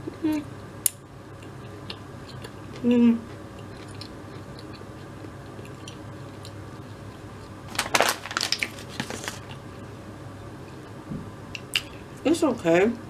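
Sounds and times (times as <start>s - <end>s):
faint steady hum: 0.0s - 13.0s
crunchy chewing: 1.4s - 9.6s.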